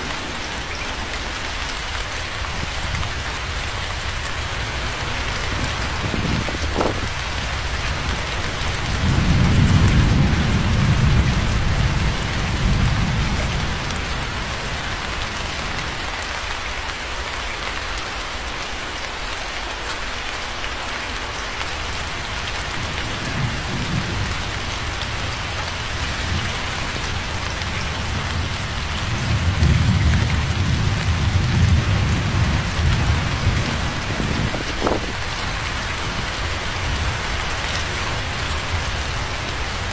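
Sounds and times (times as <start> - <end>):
steady rain falling: 0.0 - 39.9
distant thunder rolling: 4.6 - 15.0, 22.8 - 37.2.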